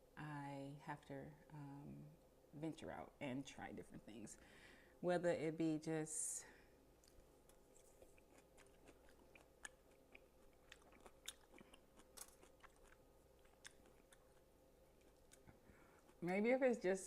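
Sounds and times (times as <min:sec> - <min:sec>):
person chewing food: 0:07.0 - 0:16.2.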